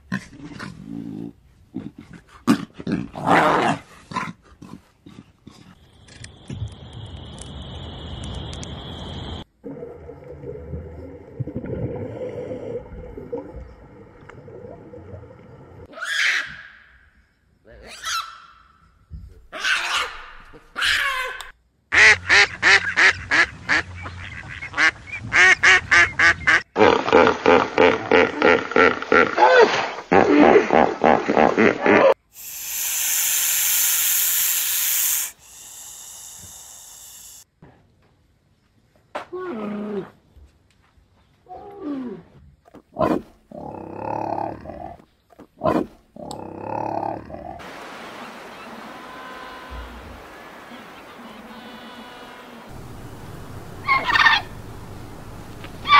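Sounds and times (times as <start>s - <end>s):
underwater gurgling and bubbling: 9.6s - 15.8s
snake hissing: 32.2s - 37.5s
rapid pulsed grunting call: 32.4s - 37.4s
steady low hum: 52.6s - 55.9s.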